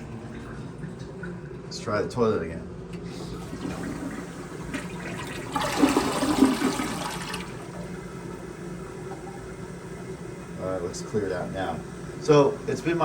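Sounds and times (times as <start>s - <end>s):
toilet flushing: 3.1s - 13.0s.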